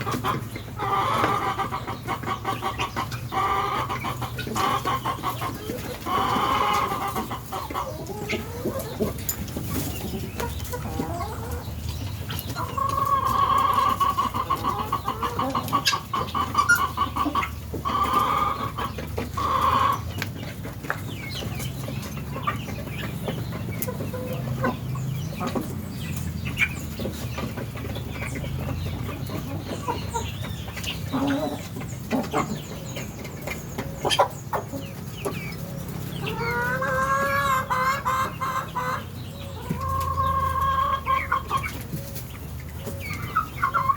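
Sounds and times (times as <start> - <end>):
guinea fowl rattling calls: 12.5 - 20.1.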